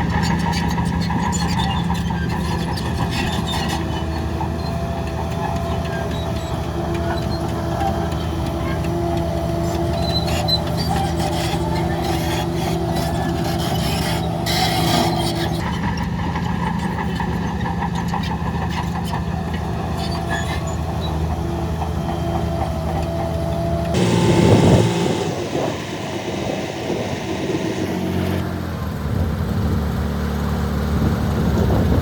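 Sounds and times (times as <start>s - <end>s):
heavy diesel machinery running: 0.0s - 32.0s
machinery clatter: 21.8s - 28.5s
thin whine: 24.0s - 28.4s.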